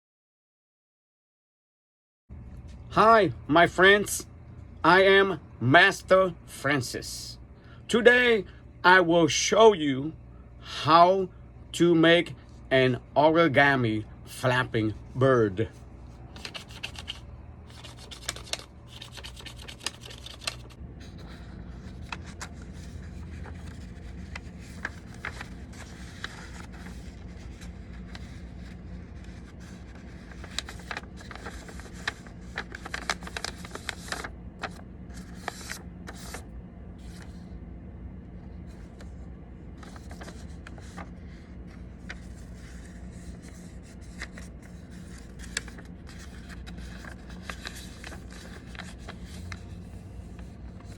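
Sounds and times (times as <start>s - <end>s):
paper rubbing strokes: 15.7s - 36.4s, 39.8s - 50.9s
paper crackling while folded: 15.7s - 37.5s, 38.4s - 50.9s.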